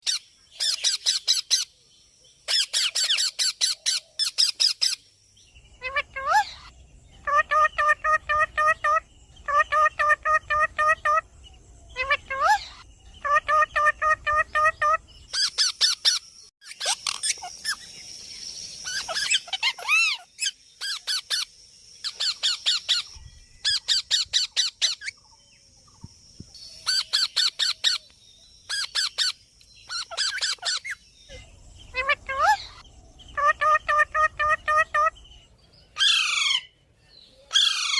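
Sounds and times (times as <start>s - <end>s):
parrot squawking: 5.8s - 11.2s, 12.0s - 17.8s, 18.9s - 25.1s, 29.9s - 31.0s, 31.9s - 35.2s, 36.0s - 36.7s, 37.5s - 37.9s.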